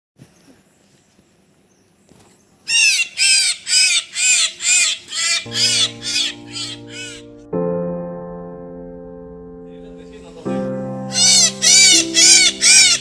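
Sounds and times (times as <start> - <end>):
myna bird calling: 0.2 - 7.3, 11.1 - 13.0.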